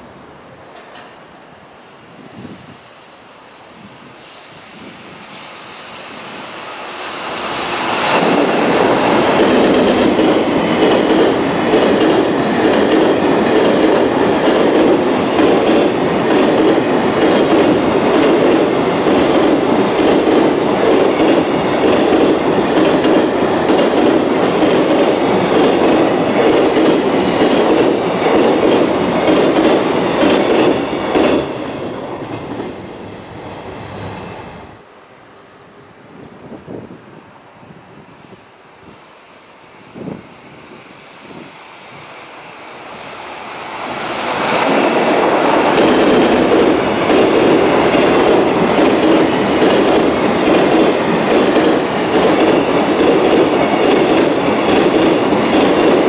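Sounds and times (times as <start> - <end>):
freight train passing: 0.0 - 56.0
wheels clacking over rail joints: 44.3 - 56.0.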